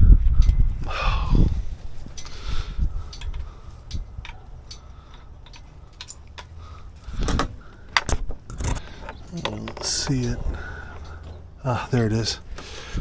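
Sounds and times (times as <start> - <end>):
metallic clicks and clinks of tools: 3.1 - 12.8.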